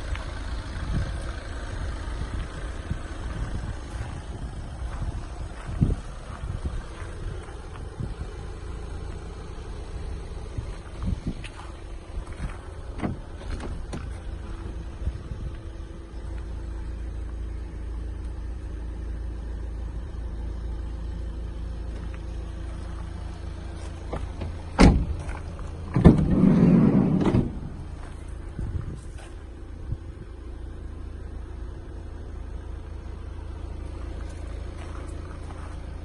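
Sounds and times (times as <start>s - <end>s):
diesel van engine rumble: 0.0s - 36.0s.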